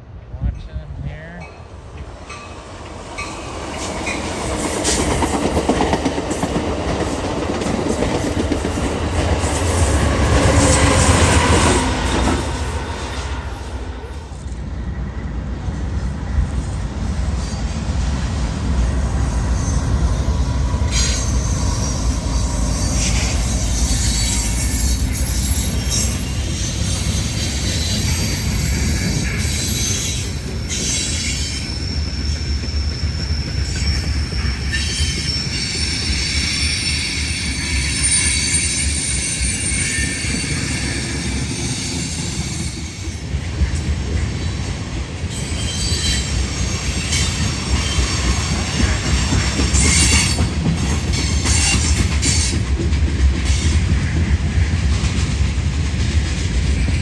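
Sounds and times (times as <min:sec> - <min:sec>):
train wheels rumbling on rails: 0:00.0 - 0:57.0
wheels clacking over rail joints: 0:01.4 - 0:13.6, 0:40.0 - 0:57.0
train wheels squealing: 0:02.3 - 0:52.8.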